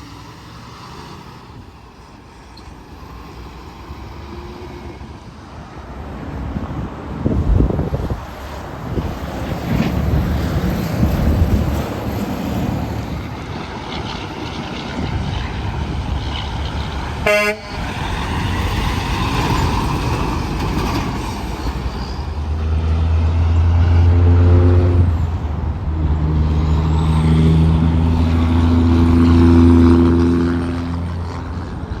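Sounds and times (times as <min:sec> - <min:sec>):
highway traffic: 0:00.0 - 0:32.0
wind noise: 0:03.5 - 0:32.0
truck air horn blasts: 0:17.2 - 0:17.9.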